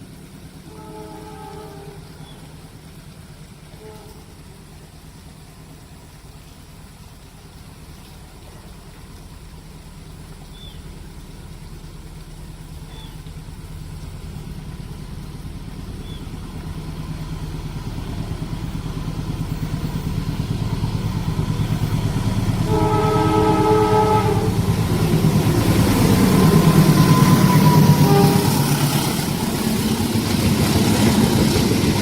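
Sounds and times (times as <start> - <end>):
diesel locomotive engine rumble: 0.0 - 32.0
locomotive horn blast: 0.6 - 2.2, 3.7 - 4.4, 21.9 - 29.6.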